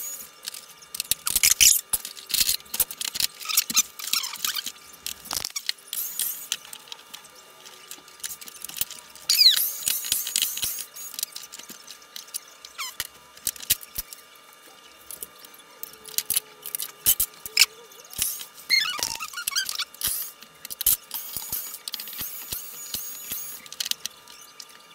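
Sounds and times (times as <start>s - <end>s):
plastic parts clicking and knocking: 0.4s - 14.2s, 15.0s - 24.8s
short falling squeaks: 18.7s - 19.9s.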